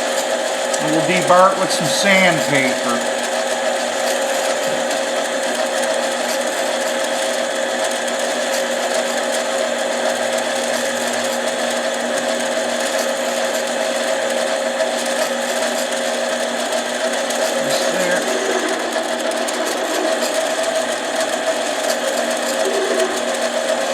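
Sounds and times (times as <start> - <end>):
bench lathe motor hum and whine: 0.0 - 23.9.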